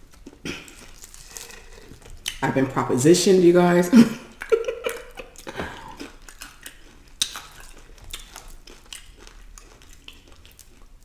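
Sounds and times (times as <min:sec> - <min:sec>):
chewing and biting food: 0:00.0 - 0:02.4, 0:04.3 - 0:11.0.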